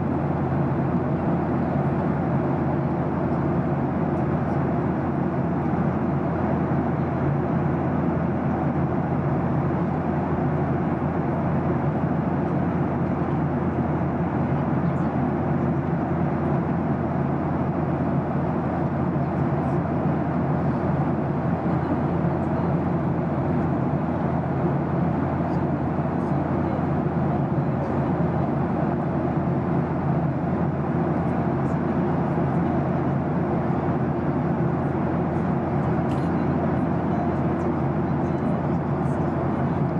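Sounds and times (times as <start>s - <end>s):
jet engines droning: 0.0s - 39.9s.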